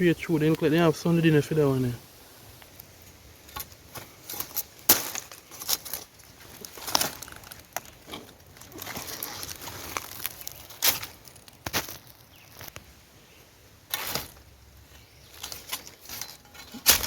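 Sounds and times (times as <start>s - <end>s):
dry leaves crackling and rustling: 0.1s - 17.0s
twigs snapping: 2.6s - 12.9s.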